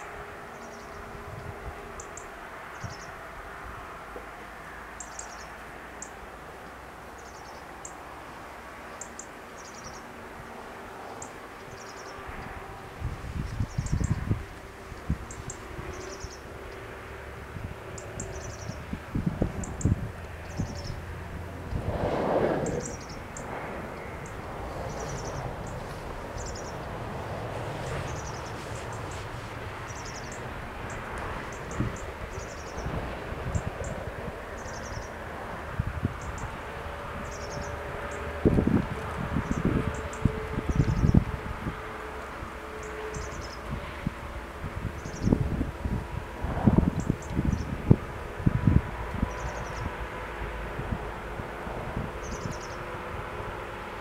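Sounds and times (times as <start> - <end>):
wind: 0.0 - 54.0
faint hum: 20.9 - 27.6
leaves rustling: 21.6 - 30.6
small birds chirping: 22.7 - 26.9.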